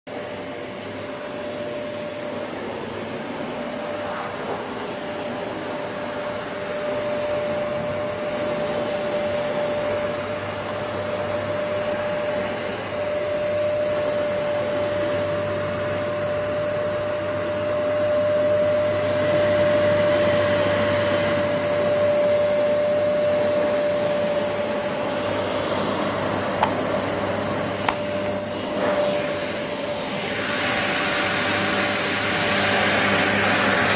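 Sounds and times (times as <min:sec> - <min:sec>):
vacuum cleaner whining: 0:00.1 - 0:33.9.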